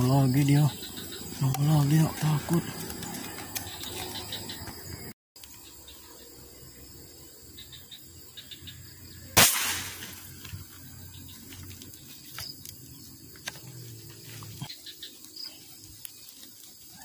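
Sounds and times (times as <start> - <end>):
insects chirping: 0.0 - 17.0
speargun firing crack: 9.4 - 10.3.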